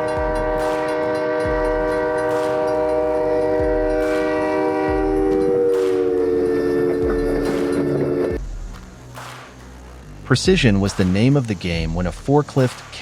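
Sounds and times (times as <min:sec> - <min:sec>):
train air horn chord: 0:00.0 - 0:08.4
faint regular thumps: 0:00.0 - 0:09.1.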